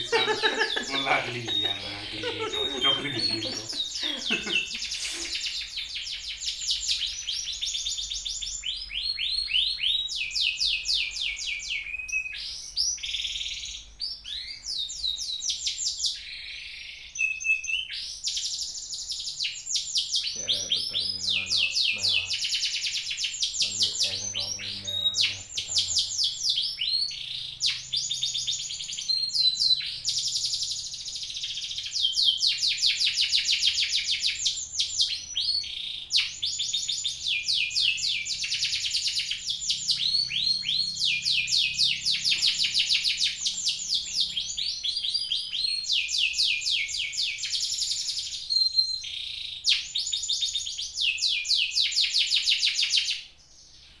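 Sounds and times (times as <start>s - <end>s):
songbird trilling and chipping: 18.0s - 53.0s.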